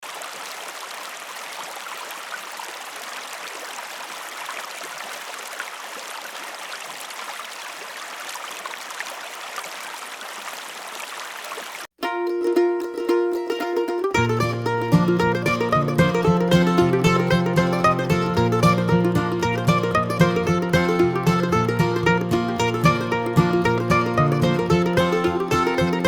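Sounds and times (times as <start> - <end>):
water trickling and splashing: 0.0 - 11.9, 14.2 - 26.0
plucked-string music: 12.0 - 26.0.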